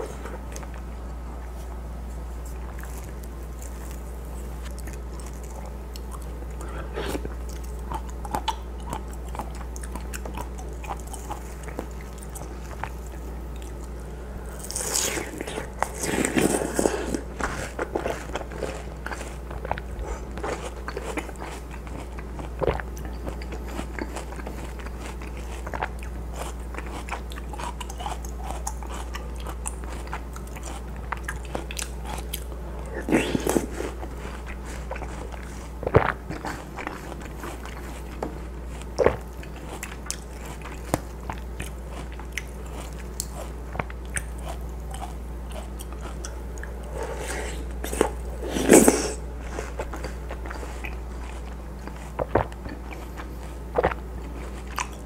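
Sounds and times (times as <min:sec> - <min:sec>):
chewing watermelon: 0:00.0 - 0:55.0.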